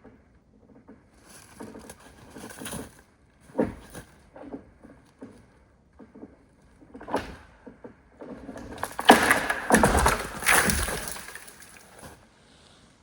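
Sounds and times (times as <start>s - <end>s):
rustling and crunching: 8.6s - 12.2s.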